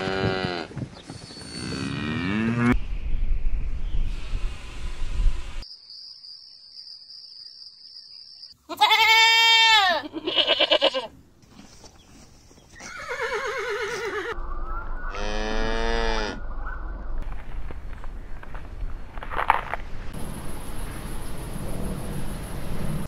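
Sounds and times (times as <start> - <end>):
goats bleating: 8.7 - 11.1.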